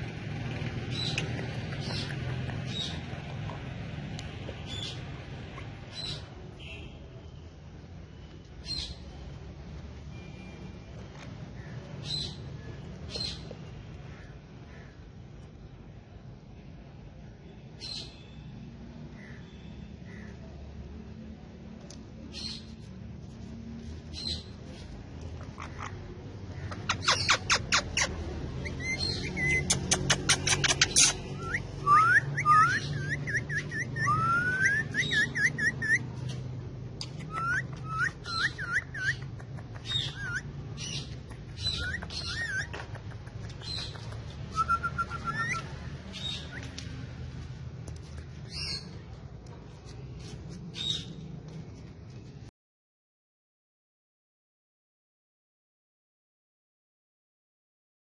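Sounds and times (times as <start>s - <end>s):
parrot calling: 25.4s - 36.0s, 37.0s - 46.8s
parrot squawking: 25.4s - 36.0s, 37.0s - 46.7s
parrot whistling: 26.8s - 36.0s, 37.2s - 39.2s, 39.9s - 40.5s, 41.6s - 42.8s, 44.5s - 46.7s.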